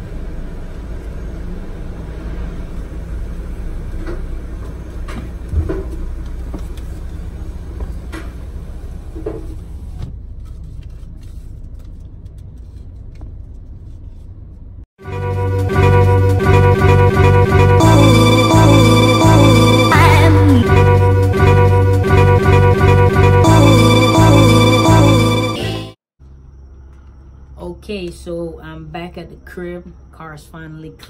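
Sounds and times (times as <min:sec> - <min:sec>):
car engine idling: 0:00.0 - 0:13.6.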